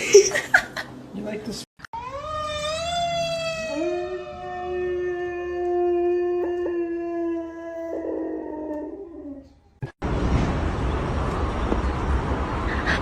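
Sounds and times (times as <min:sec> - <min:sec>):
dog howling: 0:02.0 - 0:09.6.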